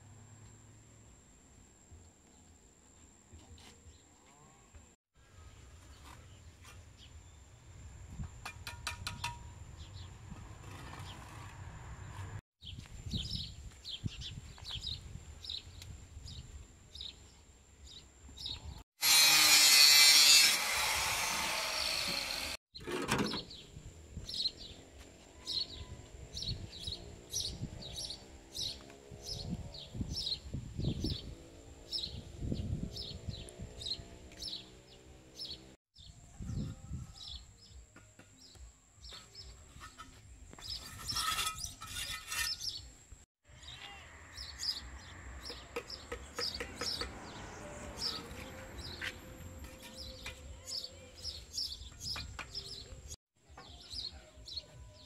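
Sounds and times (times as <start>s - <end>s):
small birds chirping: 43.6s - 55.0s.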